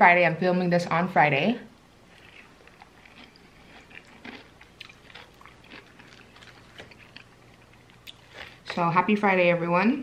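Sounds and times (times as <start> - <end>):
chewing crispy fried chicken: 2.0 - 8.7.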